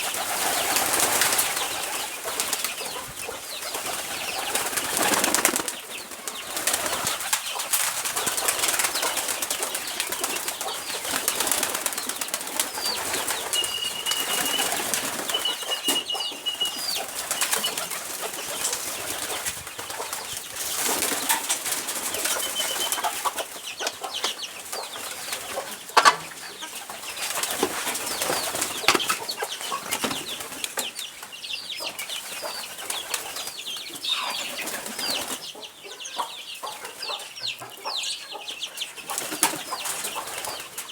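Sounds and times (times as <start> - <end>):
pigeons flapping wings: 0.1 - 2.8, 3.7 - 15.5, 17.1 - 23.2, 27.3 - 30.8
high whistling bird calls: 12.8 - 17.8.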